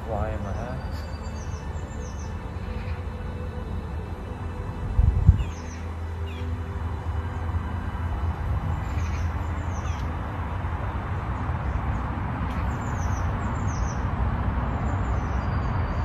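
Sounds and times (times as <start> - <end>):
small birds chirping: 0.0 - 3.4, 5.3 - 6.6, 8.4 - 16.0
steady low rumble: 0.0 - 16.0.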